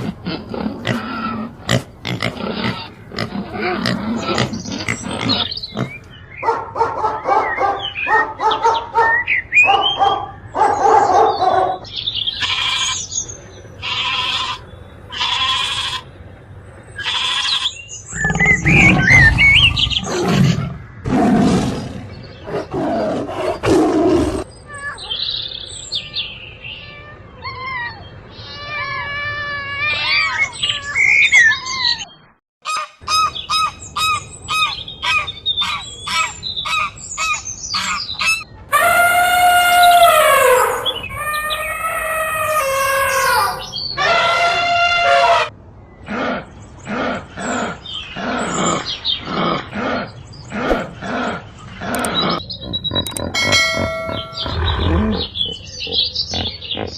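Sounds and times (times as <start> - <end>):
animal calls: 0.0 - 6.1, 17.0 - 25.1, 32.7 - 56.9.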